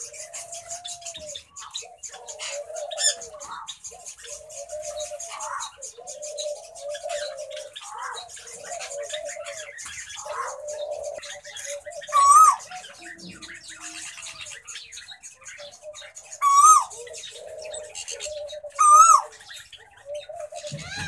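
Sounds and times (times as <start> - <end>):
rapid high bird chirping: 9.6 - 19.9.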